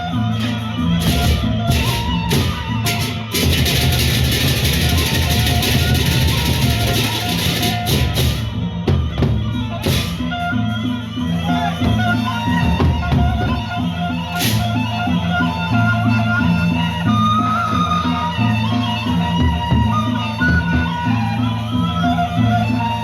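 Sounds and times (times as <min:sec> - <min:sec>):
large barrel drums beating: 0:00.0 - 0:10.8, 0:11.6 - 0:15.8.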